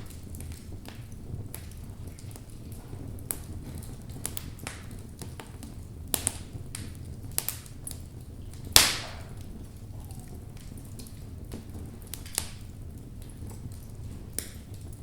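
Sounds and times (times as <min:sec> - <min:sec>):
fire crackling: 0:00.0 - 0:15.0
low fire rumble: 0:00.0 - 0:15.0
log popping: 0:06.1 - 0:12.7.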